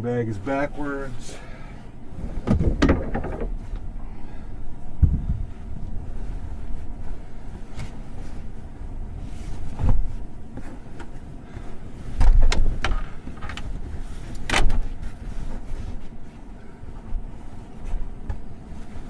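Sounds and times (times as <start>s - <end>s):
knocks and rustles inside: 0.3s - 19.0s
storm wind buffeting truck: 1.9s - 16.2s.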